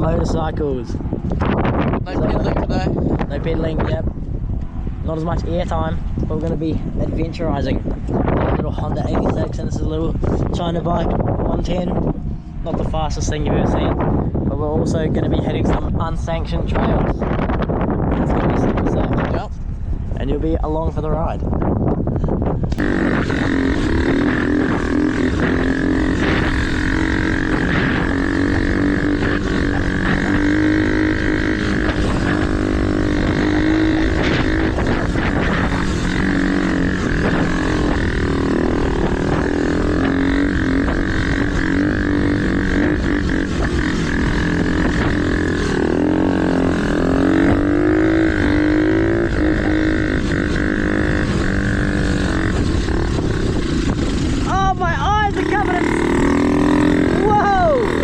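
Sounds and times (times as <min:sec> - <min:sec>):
mini dirt bike engines: 0:22.7 - 0:58.0.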